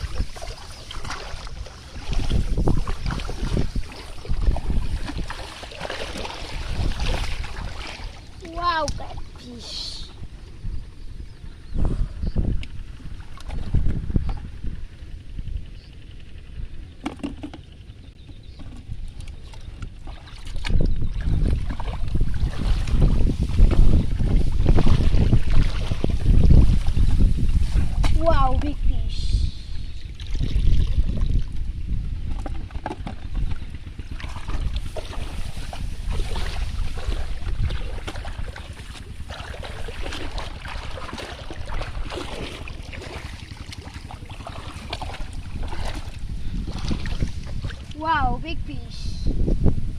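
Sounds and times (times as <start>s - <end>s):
river water splashing: 0.0s - 10.2s, 20.0s - 28.0s, 34.0s - 48.0s
wind buffeting microphone: 0.0s - 49.9s.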